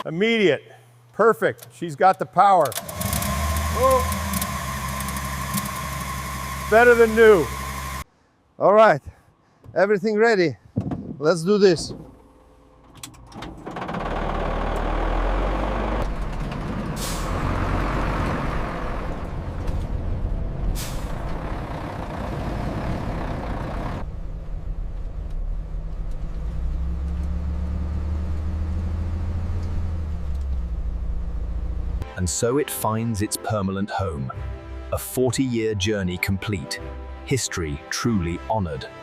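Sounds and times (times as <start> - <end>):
bus engine rumbling: 2.7 - 8.1, 11.6 - 32.2
air brake hisses: 17.0 - 17.4, 20.8 - 21.2.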